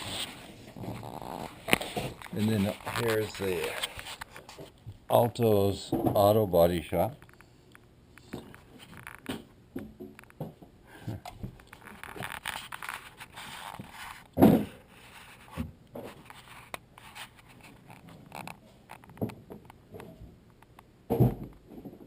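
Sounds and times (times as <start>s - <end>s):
handling scrapes and rustles: 0.0s - 4.8s, 11.6s - 19.1s.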